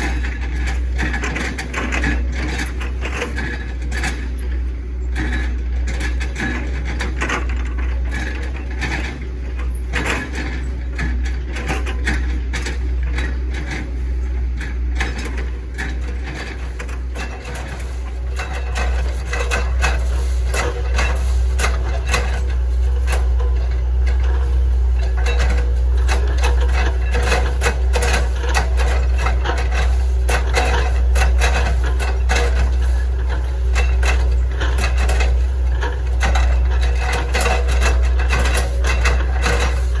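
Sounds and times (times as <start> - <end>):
excavator diesel engine drone: 0.0 - 40.0
wood cracking and crunching: 39.7 - 40.0.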